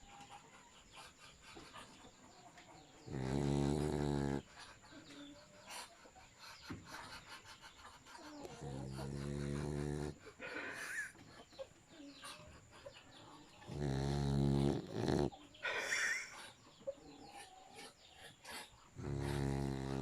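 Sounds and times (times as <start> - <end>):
dog breathing softly: 0.0 - 20.0
dog snoring: 3.1 - 4.6, 8.4 - 11.0, 13.6 - 16.2, 19.0 - 20.0.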